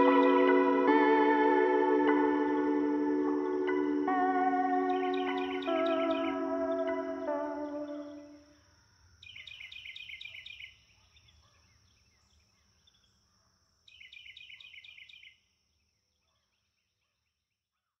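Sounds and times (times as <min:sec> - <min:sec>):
faint high-pitched tone: 0:00.0 - 0:08.4
music: 0:00.0 - 0:08.4.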